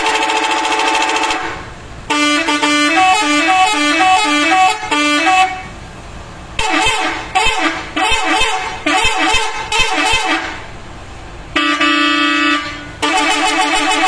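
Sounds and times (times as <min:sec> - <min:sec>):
musical bus horn: 0:00.0 - 0:05.8, 0:06.6 - 0:10.8, 0:11.5 - 0:14.0.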